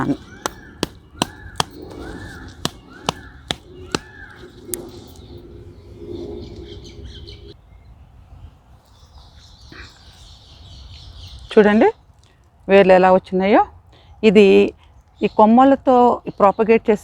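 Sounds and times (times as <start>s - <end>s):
crow cawing: 0.0s - 4.5s
sharp taps and knocks: 0.4s - 4.8s.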